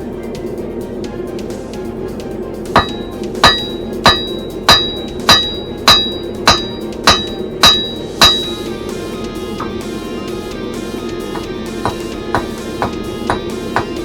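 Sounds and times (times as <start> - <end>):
hammer striking steel on anvil: 2.7 - 9.0, 9.6 - 10.0, 11.2 - 14.0
anvil ringing: 2.7 - 10.4, 11.2 - 14.0.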